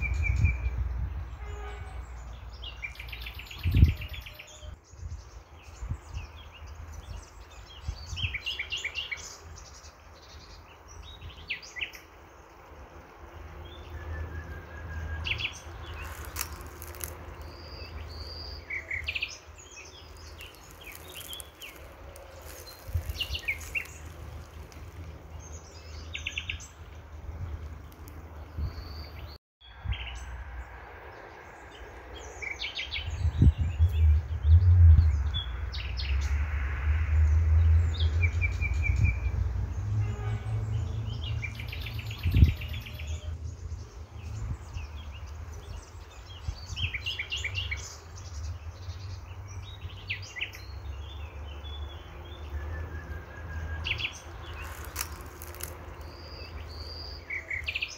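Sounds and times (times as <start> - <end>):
birds chirping and calling: 15.1 - 29.4, 40.7 - 57.9
low rumble on microphone: 33.0 - 47.0.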